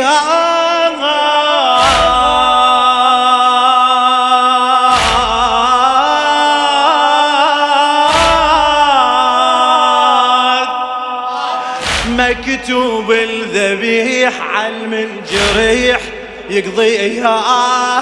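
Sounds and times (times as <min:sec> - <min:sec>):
male voices chanting a chord: 0:00.0 - 0:18.0
chest-beating strokes: 0:11.8 - 0:12.5.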